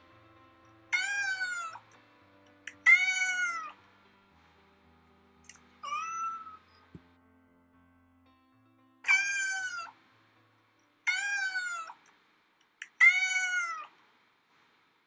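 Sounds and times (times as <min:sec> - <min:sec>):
cat meowing: 0:01.0 - 0:01.8, 0:02.8 - 0:03.7, 0:05.8 - 0:06.6, 0:09.1 - 0:09.9, 0:11.1 - 0:12.0, 0:12.9 - 0:13.9.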